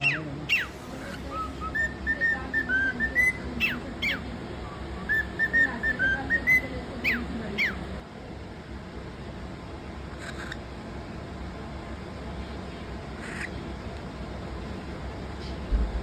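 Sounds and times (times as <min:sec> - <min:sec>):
cockatiel whistling a tune: 0:00.0 - 0:04.2, 0:05.1 - 0:07.7.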